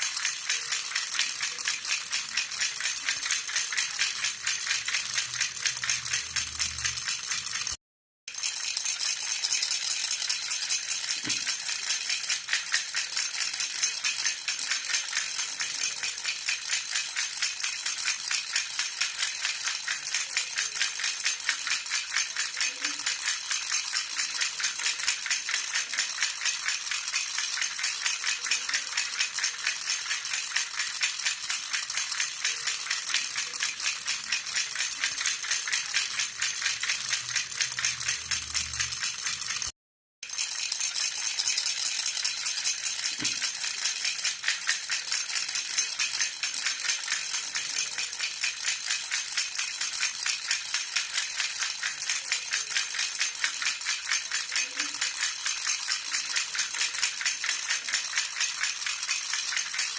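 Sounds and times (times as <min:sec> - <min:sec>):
metal baby rattle jingling: 0:00.0 - 0:59.9.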